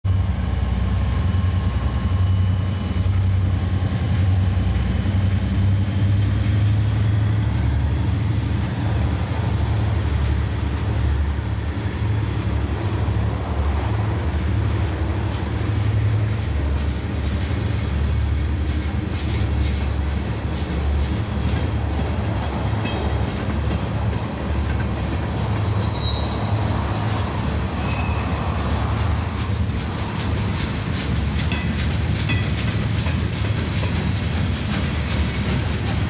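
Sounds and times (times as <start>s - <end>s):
freight train wheels rumbling: 0.0s - 36.0s.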